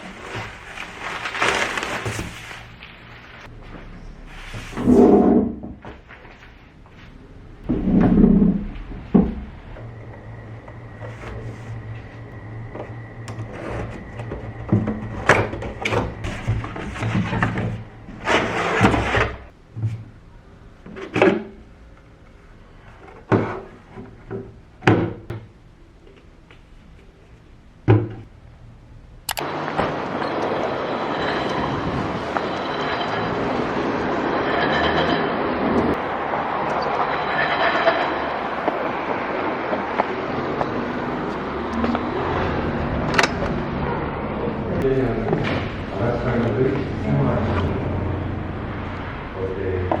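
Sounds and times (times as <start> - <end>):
low steady hum: 0.0 - 39.3
objects knocking and clattering: 7.6 - 11.9, 12.7 - 20.1.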